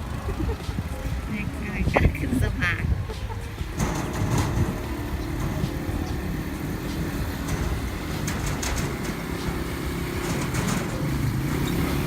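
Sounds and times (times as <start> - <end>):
small vehicle engine running: 0.0 - 12.0
sharp clicks and knocks: 3.1 - 12.0.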